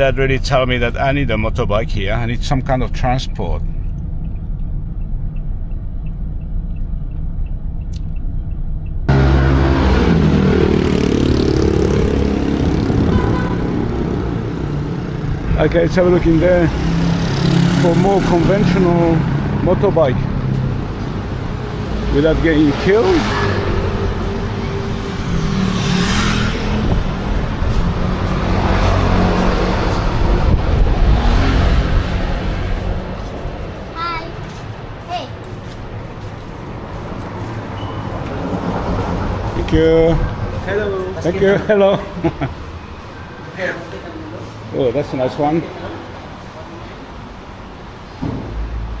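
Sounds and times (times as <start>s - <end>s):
low traffic rumble: 0.0s - 49.0s
motor vehicle passing close: 9.0s - 34.0s.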